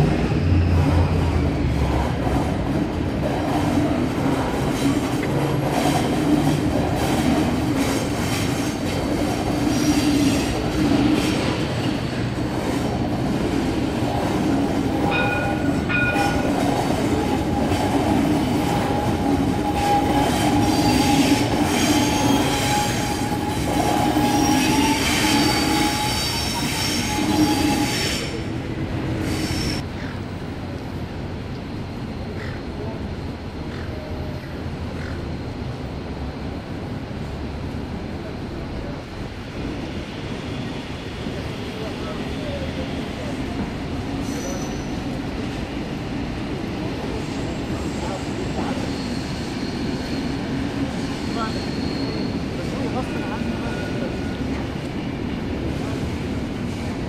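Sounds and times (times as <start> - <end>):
train running noise: 0.0 - 57.0
wheels squealing on rails: 4.8 - 13.6, 14.2 - 30.1, 39.8 - 45.6, 46.6 - 54.7.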